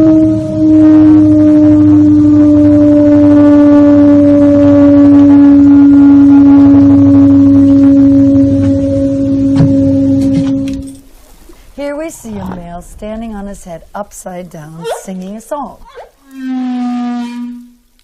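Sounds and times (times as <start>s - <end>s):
low horn-like tone: 0.0s - 11.1s, 14.8s - 18.0s.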